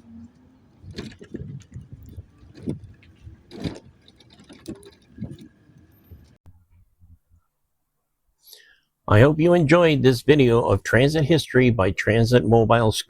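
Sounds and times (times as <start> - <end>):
mobility scooter knocks and rattles: 0.8 - 5.6.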